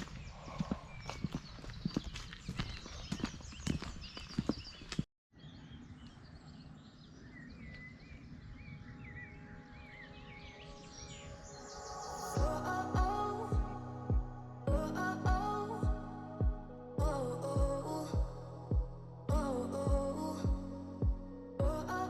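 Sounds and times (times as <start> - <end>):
small birds chirping: 0.0 - 13.8
outdoor background noise: 0.0 - 21.9.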